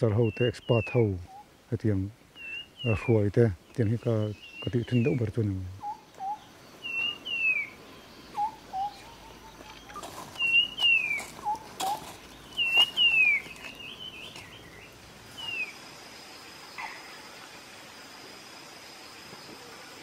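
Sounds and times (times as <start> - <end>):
birds whistling: 0.0 - 1.5, 2.3 - 3.2, 4.2 - 15.8.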